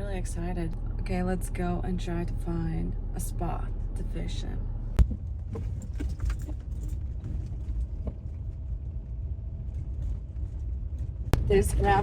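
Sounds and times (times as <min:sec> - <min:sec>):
car rumbling over gravel road: 0:00.0 - 0:12.0
small knocks and rattles: 0:05.0 - 0:08.7.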